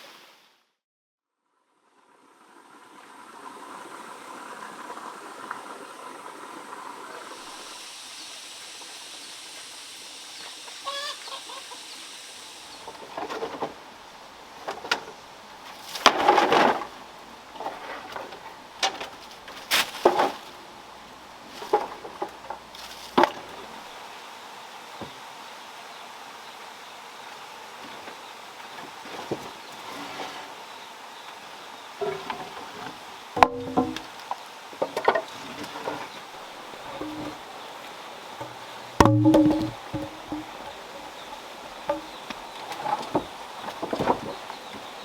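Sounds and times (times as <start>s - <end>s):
steady background hiss: 2.1s - 45.0s
chickens clucking: 10.5s - 13.7s, 32.0s - 34.1s, 36.8s - 37.8s.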